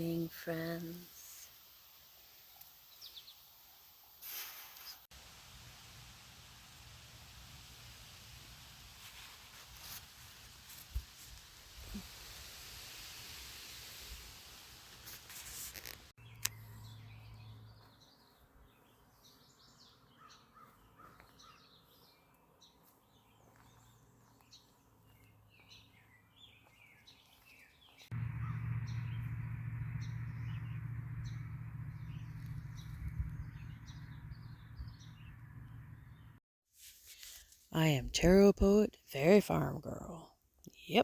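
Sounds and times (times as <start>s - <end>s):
birds chirping: 16.2s - 36.4s.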